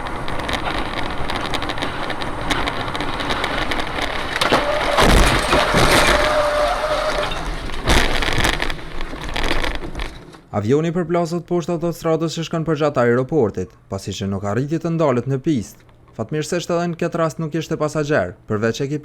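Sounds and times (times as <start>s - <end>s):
vehicle and road noise: 0.0s - 10.6s
loud crashing impacts: 1.7s - 10.2s.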